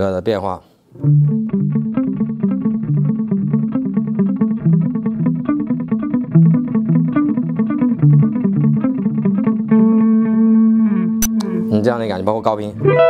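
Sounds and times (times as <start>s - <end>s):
electric guitar with delay: 1.0s - 11.8s, 12.8s - 13.0s.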